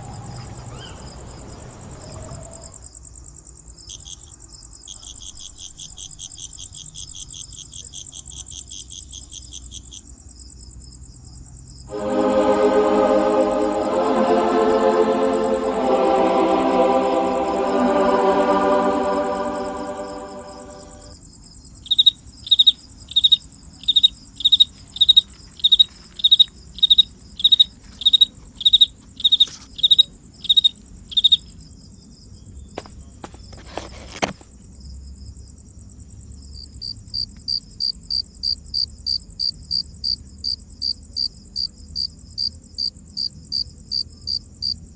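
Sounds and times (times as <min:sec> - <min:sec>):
crickets chirping: 0:00.0 - 0:44.9
music: 0:11.9 - 0:21.2
high insect trill: 0:12.0 - 0:32.2.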